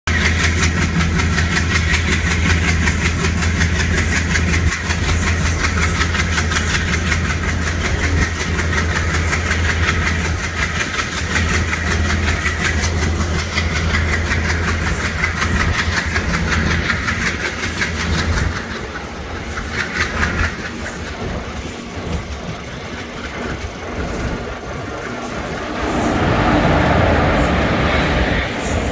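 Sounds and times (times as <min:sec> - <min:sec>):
train wheels clacking over rails: 0:00.1 - 0:28.9
low engine hum: 0:21.2 - 0:28.9.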